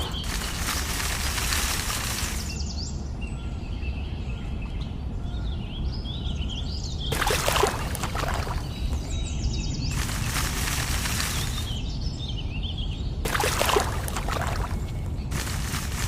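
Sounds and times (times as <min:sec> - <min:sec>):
rustling or scraping noise: 0:00.0 - 0:02.6, 0:09.9 - 0:11.8, 0:13.3 - 0:16.0
small birds chirping: 0:00.0 - 0:16.0.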